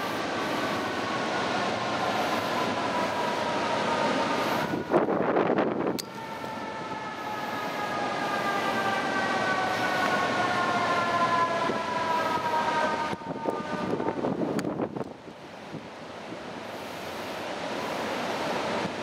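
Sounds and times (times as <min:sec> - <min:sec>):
distant fire engine siren: 0:00.0 - 0:16.6, 0:17.4 - 0:19.0
wind gusting on microphone: 0:00.0 - 0:16.7.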